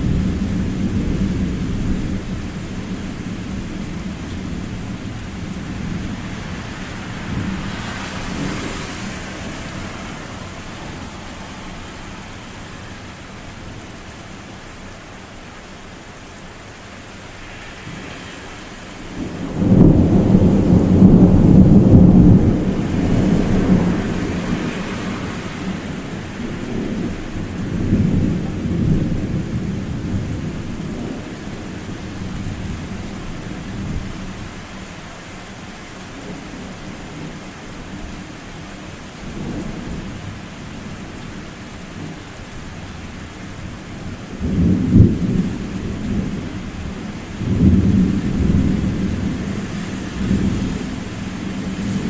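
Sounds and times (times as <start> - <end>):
rolling thunder: 0.0 - 12.8, 17.4 - 34.4, 44.0 - 52.0
rain hiss: 0.0 - 52.0.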